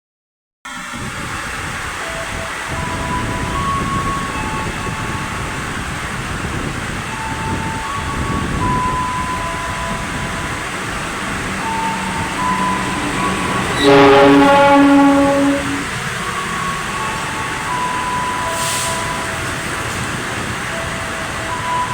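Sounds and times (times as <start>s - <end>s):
train rushing past: 0.7s - 21.9s
heavy rain: 0.8s - 21.9s
loud train horn: 7.5s - 17.0s, 18.0s - 19.3s.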